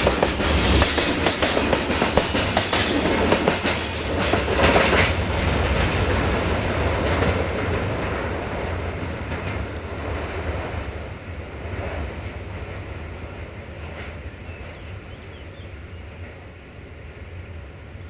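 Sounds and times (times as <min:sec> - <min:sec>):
train wheels clicking over rail joints: 0:00.0 - 0:06.2, 0:06.9 - 0:10.9, 0:11.6 - 0:15.2.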